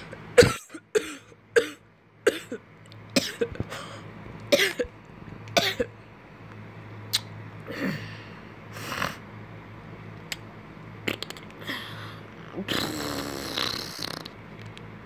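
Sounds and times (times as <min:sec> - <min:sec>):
person coughing: 0:00.4 - 0:02.6, 0:03.2 - 0:03.6, 0:04.6 - 0:04.9, 0:05.6 - 0:05.9.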